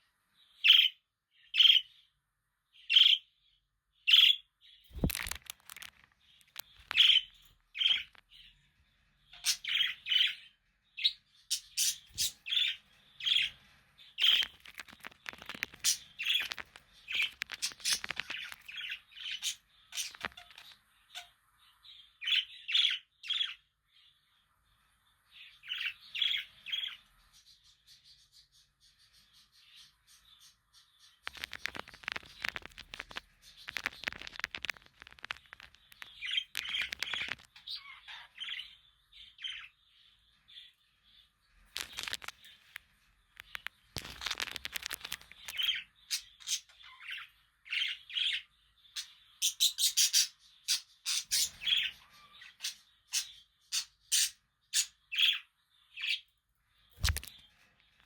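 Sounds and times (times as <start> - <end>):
scratchy clicking rustle: 5.0 - 7.2, 14.2 - 20.7, 31.3 - 37.8, 41.7 - 45.8
budgerigars chirping: 6.8 - 8.2, 9.4 - 21.4, 31.2 - 39.8, 44.8 - 56.3.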